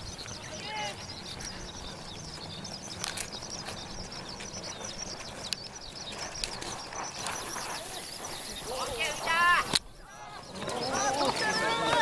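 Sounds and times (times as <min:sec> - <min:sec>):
birds chirping: 0:00.0 - 0:12.0
sharp clicks: 0:02.9 - 0:03.8, 0:09.6 - 0:09.9.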